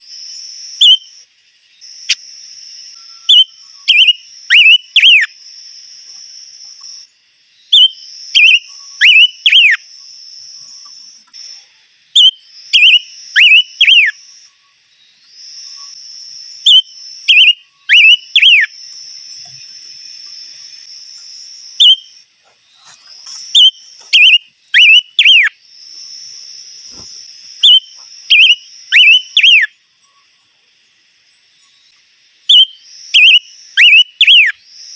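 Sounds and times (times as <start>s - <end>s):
high insect drone: 0.0s - 34.9s
songbird whistling: 0.8s - 1.2s, 2.9s - 5.4s, 6.8s - 11.1s, 12.2s - 14.7s, 15.5s - 20.9s, 21.7s - 22.2s, 23.5s - 25.6s, 26.9s - 30.3s, 32.5s - 34.6s.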